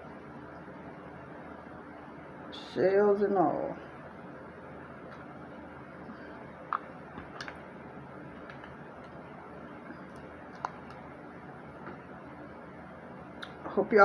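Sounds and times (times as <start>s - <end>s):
steady low hum: 0.0s - 14.0s
mussel shells clicking: 10.1s - 11.0s.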